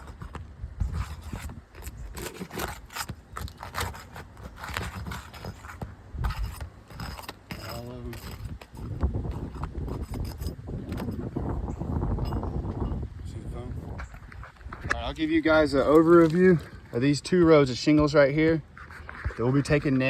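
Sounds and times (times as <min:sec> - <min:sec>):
pry tool scraping shingles: 0:00.0 - 0:12.8, 0:14.0 - 0:20.0.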